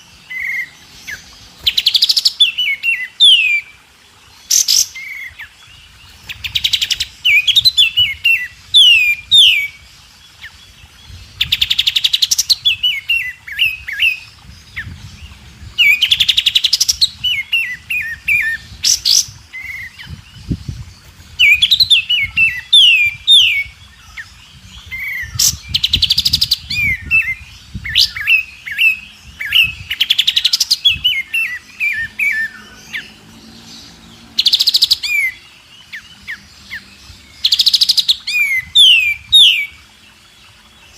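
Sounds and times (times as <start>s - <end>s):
songbird singing rattles and whistles: 10.4s - 39.8s.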